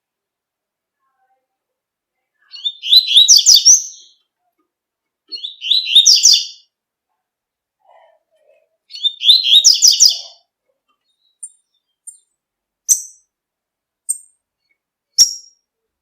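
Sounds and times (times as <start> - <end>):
bird singing high rapid notes: 2.6 - 4.2, 5.3 - 6.7, 8.9 - 10.4.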